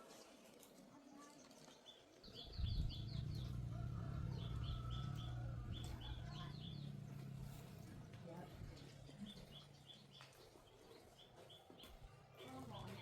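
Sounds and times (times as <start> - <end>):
low steady motor hum: 2.5 - 10.0.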